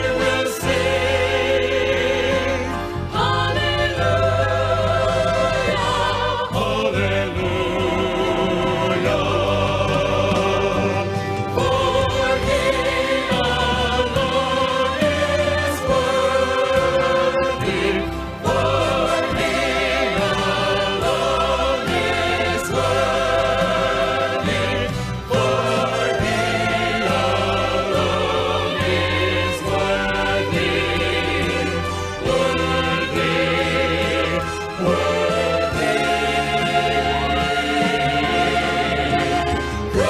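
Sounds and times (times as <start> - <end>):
instrumental accompaniment: 0.0 - 40.0
vocal group singing in harmony: 0.0 - 40.0.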